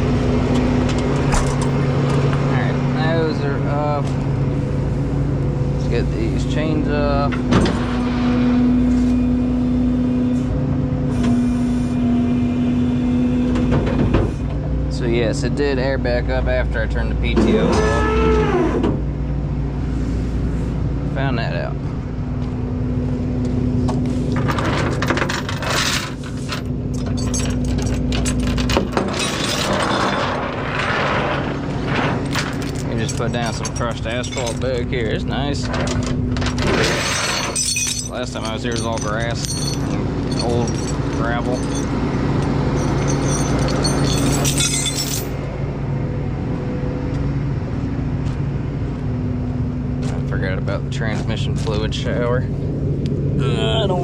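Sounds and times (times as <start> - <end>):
diesel engine running: 0.0 - 54.0
metal chains clinking: 24.5 - 45.5.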